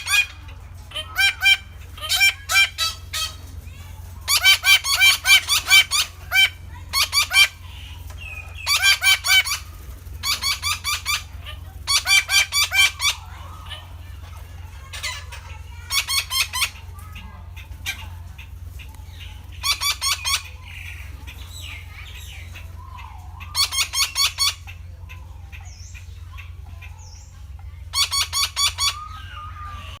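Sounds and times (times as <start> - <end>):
parakeet harsh calls: 0.0 - 18.5, 19.1 - 27.3, 27.9 - 30.0
steady low hum: 0.0 - 30.0.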